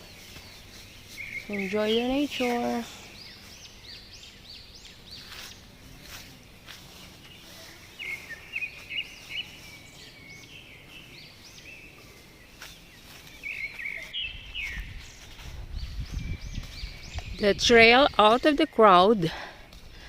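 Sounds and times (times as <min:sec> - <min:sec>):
songbirds chirping: 0:00.0 - 0:20.0.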